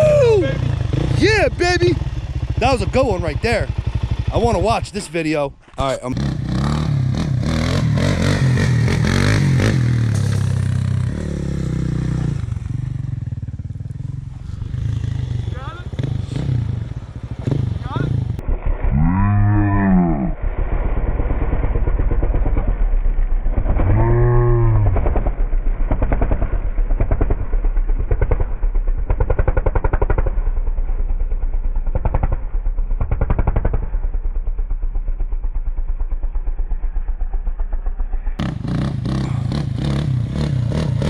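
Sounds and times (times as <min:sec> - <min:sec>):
atv engine revving: 0:00.0 - 0:05.2, 0:05.9 - 0:18.4, 0:23.6 - 0:25.3, 0:36.3 - 0:41.0.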